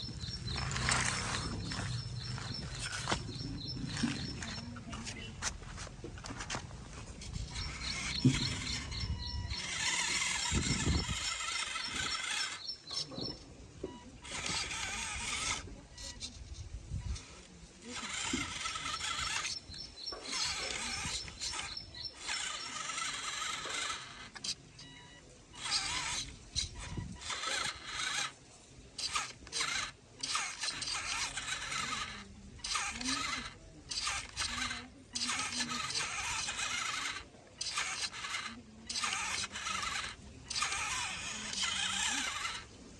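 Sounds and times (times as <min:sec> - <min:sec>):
toy electric motor and gearbox: 0:00.0 - 0:42.8.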